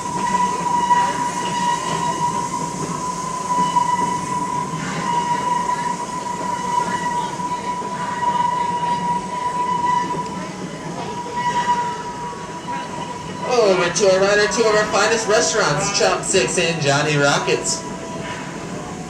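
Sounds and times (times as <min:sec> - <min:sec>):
train cars rumbling on track: 0:00.0 - 0:19.0
high-pitched wheel squeal: 0:00.2 - 0:14.2.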